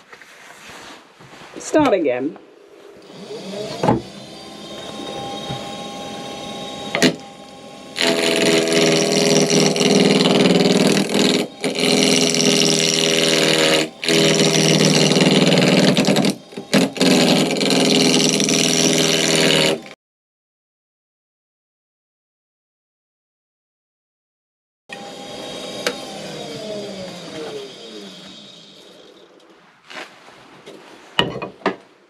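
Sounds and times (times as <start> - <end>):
gouge cutting spinning wood: 3.0 - 20.0, 24.9 - 29.5
wood lathe humming: 3.0 - 20.0, 24.9 - 29.5.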